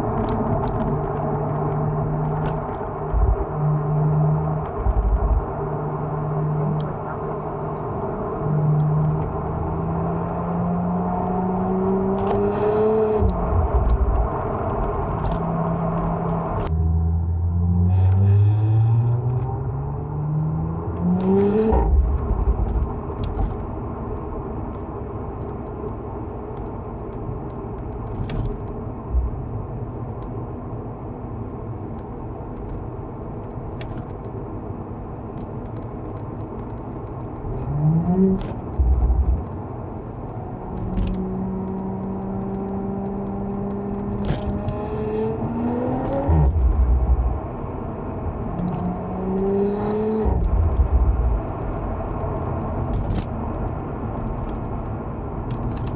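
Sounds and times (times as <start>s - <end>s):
car engine revving: 0.0s - 24.0s, 37.2s - 54.8s.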